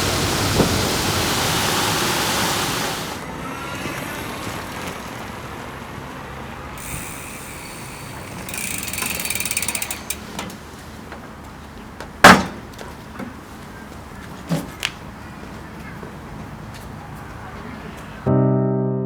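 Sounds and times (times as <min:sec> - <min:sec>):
rapid ratchet-like clicks: 0:06.8 - 0:10.4.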